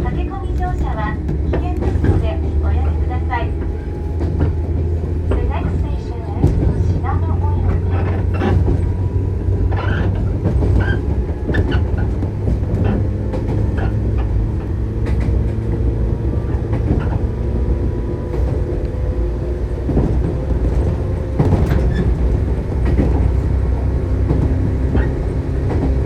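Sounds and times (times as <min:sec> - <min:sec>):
electric train rumbling: 0:00.0 - 0:26.0
wheels clicking over rail joints: 0:00.1 - 0:26.0.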